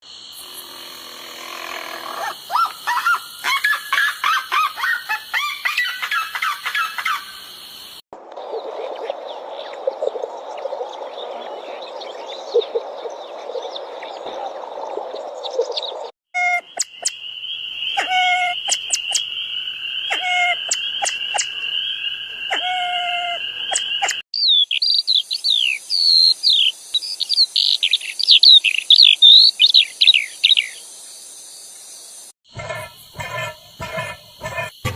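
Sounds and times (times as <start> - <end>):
birds chirping and calling: 1.6 - 7.5, 8.4 - 30.8, 32.5 - 34.9.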